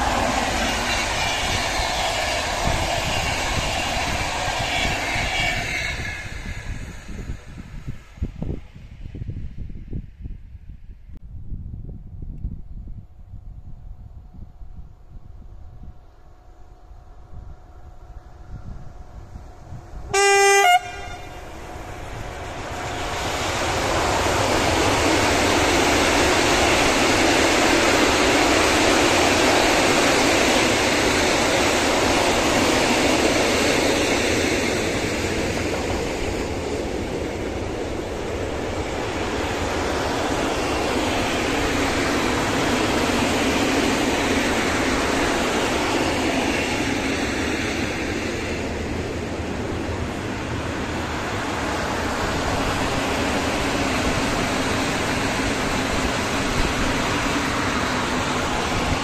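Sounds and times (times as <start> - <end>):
train wheels on rails: 0.0 - 10.1, 14.6 - 59.0
locomotive horn blast: 20.1 - 21.6.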